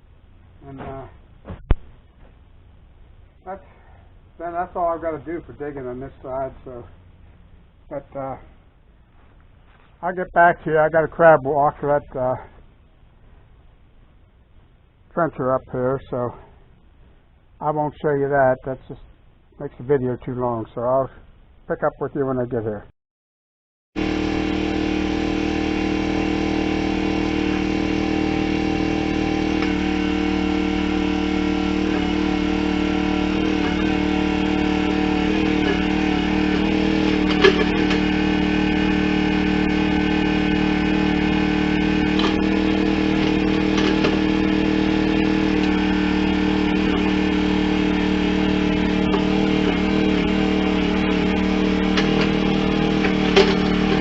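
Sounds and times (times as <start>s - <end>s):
engine running steadily: 24.0s - 54.0s.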